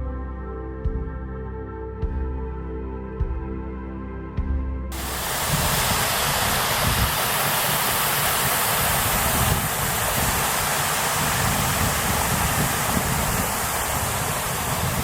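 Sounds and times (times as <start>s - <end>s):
waterfall rushing water: 5.0s - 15.0s.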